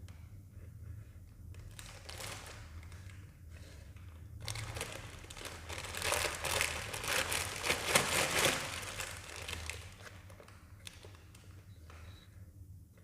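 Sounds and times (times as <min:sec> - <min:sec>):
chip bag crinkling: 0:04.4 - 0:11.1.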